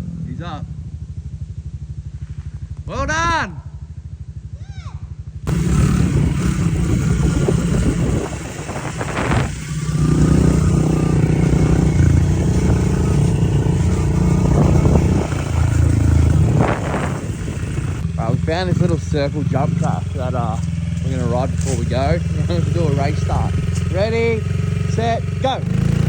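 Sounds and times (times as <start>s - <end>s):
motorbike engine under throttle: 5.3s - 26.0s.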